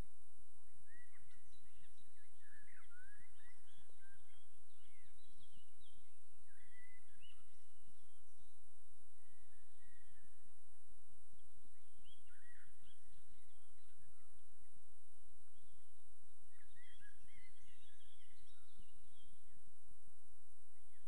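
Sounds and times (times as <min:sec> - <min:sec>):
small birds chirping and whistling: 0:00.6 - 0:08.6, 0:09.2 - 0:10.4, 0:11.4 - 0:14.5, 0:16.5 - 0:19.6.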